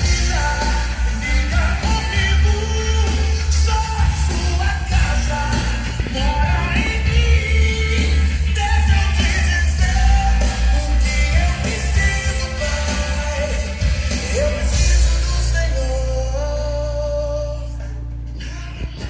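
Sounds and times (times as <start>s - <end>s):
heavy bass: 0.0s - 19.0s
song with singing over loud speakers: 0.0s - 19.0s.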